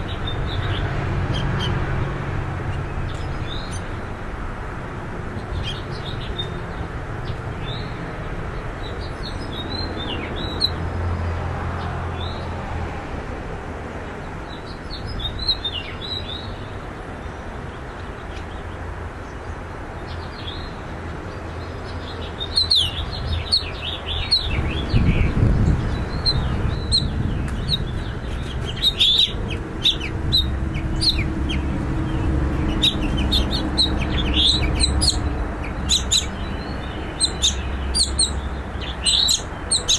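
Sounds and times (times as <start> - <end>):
finches chirping: 22.0 - 39.9.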